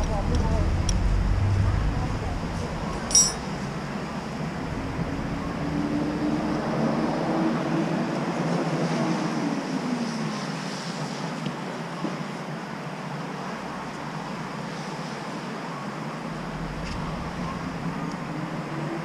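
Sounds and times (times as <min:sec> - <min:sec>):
engine running: 0:00.0 - 0:06.5, 0:16.1 - 0:19.0
steady background noise: 0:00.0 - 0:19.0.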